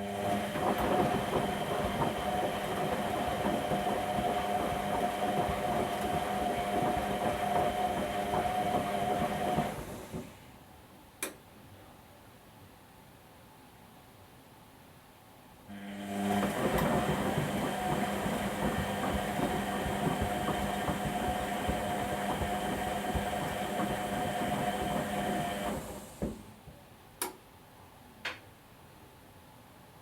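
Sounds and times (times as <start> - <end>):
washing machine running: 0.0 - 10.6, 15.7 - 26.8.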